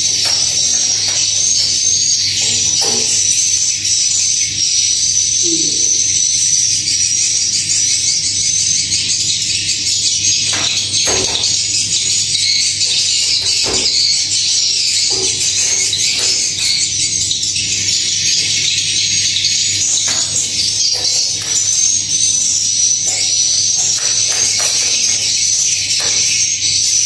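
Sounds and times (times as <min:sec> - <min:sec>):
swiftlets twittering: 0:19.6 - 0:27.0.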